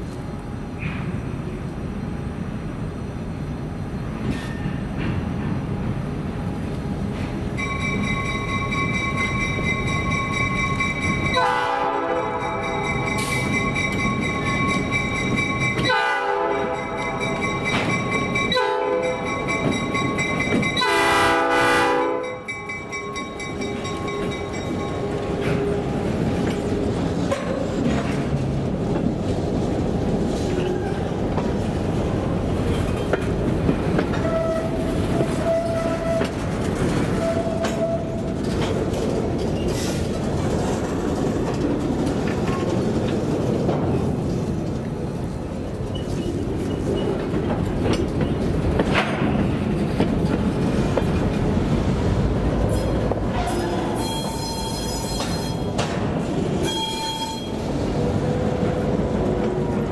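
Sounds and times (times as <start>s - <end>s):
train wheels clicking over rail joints: 4.0s - 11.6s, 12.2s - 21.0s, 22.3s - 59.9s
locomotive horn blasts: 11.3s - 13.3s, 15.8s - 17.4s, 18.5s - 19.3s, 20.8s - 22.5s, 56.6s - 57.6s.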